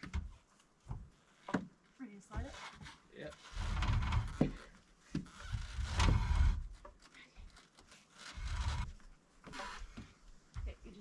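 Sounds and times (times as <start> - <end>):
wood knocking on wood: 0.0 - 1.8, 3.7 - 7.0
wooden beam sliding: 2.4 - 10.1.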